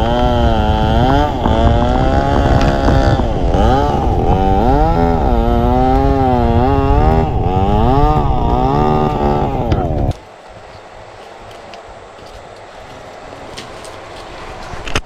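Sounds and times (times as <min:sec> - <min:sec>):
motorcycle engine revving: 0:00.0 - 0:10.4.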